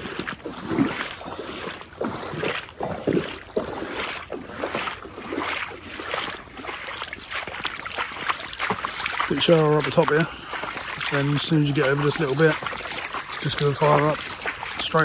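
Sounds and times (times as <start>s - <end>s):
wading through water: 0.0s - 15.0s.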